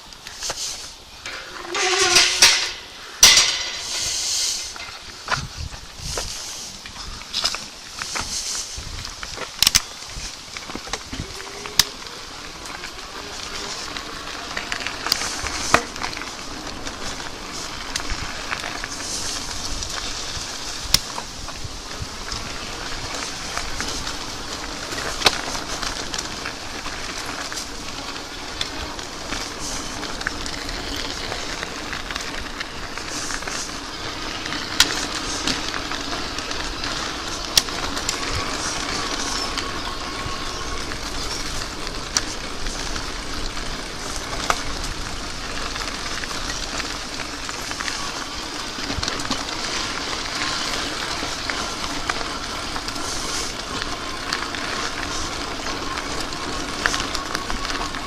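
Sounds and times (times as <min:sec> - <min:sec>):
bike clicking over bumps: 0:00.0 - 0:58.0
bike tyres rolling on path: 0:00.0 - 0:58.0
wind on microphone: 0:03.3 - 0:07.4, 0:08.2 - 0:09.3.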